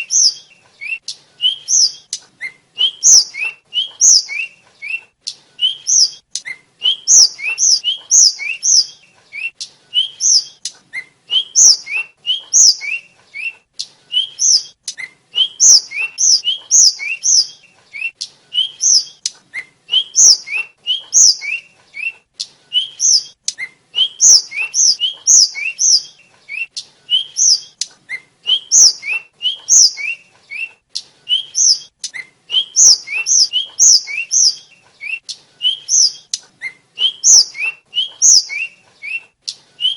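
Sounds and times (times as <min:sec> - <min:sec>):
bird singing rising whistles: 0:05.6 - 0:30.7, 0:31.3 - 0:39.9.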